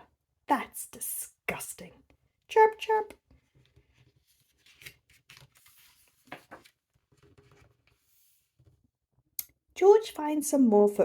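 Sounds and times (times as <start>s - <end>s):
book pages turning: 3.4s - 8.7s.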